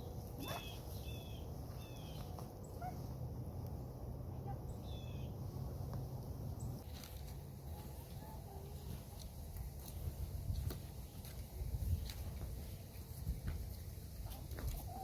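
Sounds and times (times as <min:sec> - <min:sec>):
bird chirping: 0:00.0 - 0:03.0, 0:04.5 - 0:05.4
low background rumble: 0:00.0 - 0:15.0.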